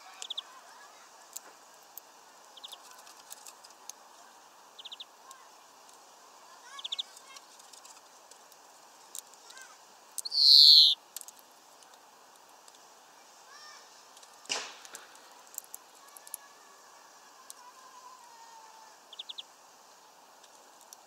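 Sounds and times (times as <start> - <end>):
small birds chirping: 0.0 - 1.4, 2.4 - 8.3, 9.0 - 11.0, 15.3 - 21.0.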